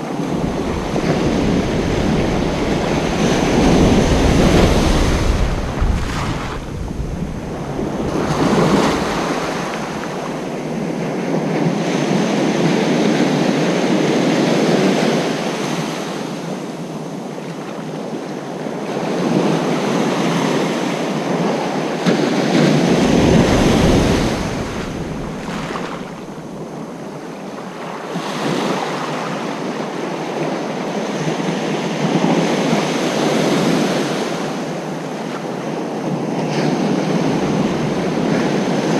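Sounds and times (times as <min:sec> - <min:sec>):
ocean surf breaking: 0:00.0 - 0:16.5, 0:22.0 - 0:27.0, 0:32.5 - 0:38.9
wind rumbling on microphone: 0:00.0 - 0:38.9.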